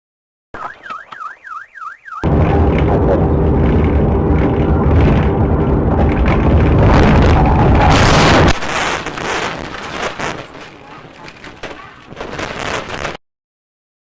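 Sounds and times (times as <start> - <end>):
electronic warbling siren tone: 0.9 - 8.5
loud steady rumbling: 2.2 - 9.7.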